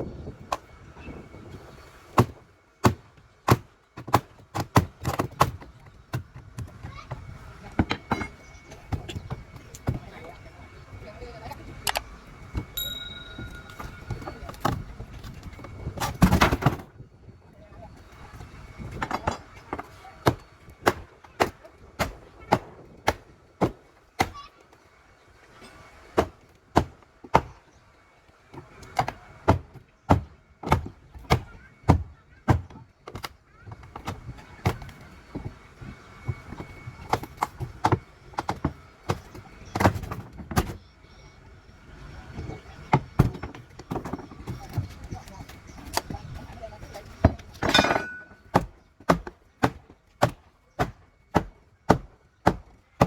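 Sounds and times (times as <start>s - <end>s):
hammering blows: 12.5s - 16.8s, 42.4s - 53.0s.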